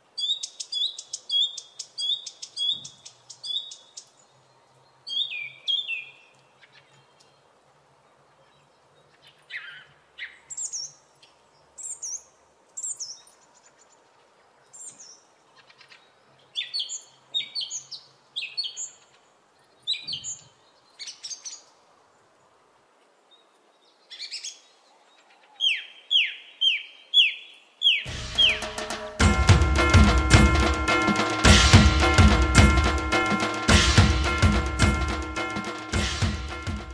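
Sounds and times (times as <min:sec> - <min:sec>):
small birds chirping: 0:00.0 - 0:21.8, 0:23.2 - 0:28.7
music with drum beat: 0:28.1 - 0:36.9.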